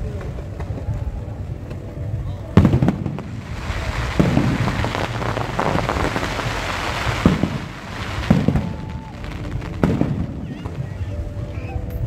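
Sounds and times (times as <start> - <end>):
firework crackling: 2.4 - 11.6
firework booms: 2.6 - 10.8.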